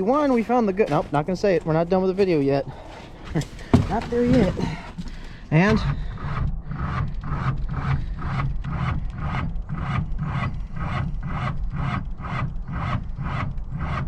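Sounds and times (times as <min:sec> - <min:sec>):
starter motor cranking engine: 0:02.7 - 0:14.0.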